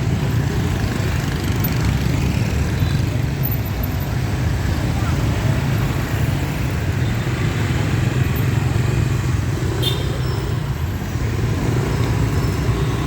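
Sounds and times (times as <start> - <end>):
traffic engine hum: 0.0 - 13.0.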